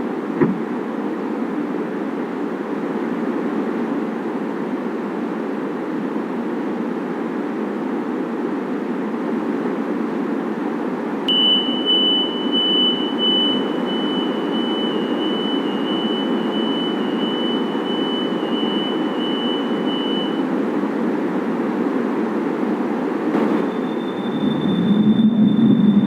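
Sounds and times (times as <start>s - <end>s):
light-rail train rumble: 0.0s - 26.0s
electronic warning tone beeping: 11.3s - 20.5s, 23.4s - 26.0s.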